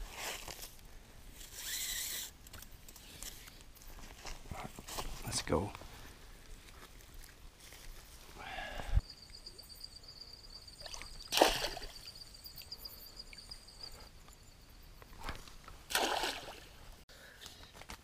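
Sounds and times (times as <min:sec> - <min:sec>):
high-pitched whine: 0:08.8 - 0:15.6
creek water splashing: 0:10.8 - 0:12.2, 0:15.9 - 0:16.8.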